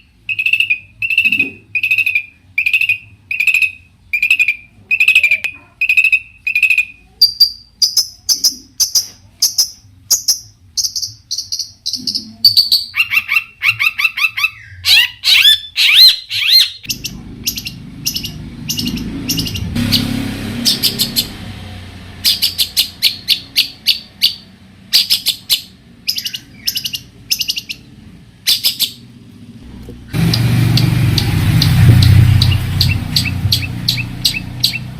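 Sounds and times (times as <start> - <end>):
shrike singing: 0.0 - 29.1, 30.1 - 34.9
low rushing noise: 29.1 - 34.9.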